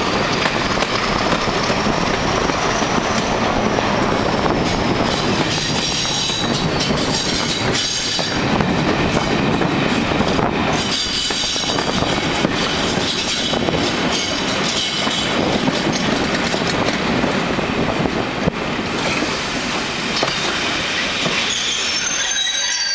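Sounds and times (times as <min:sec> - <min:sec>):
wheels rumbling on track: 0:00.0 - 0:22.0
train wheels squealing: 0:05.0 - 0:08.5, 0:10.8 - 0:12.2, 0:20.2 - 0:22.9.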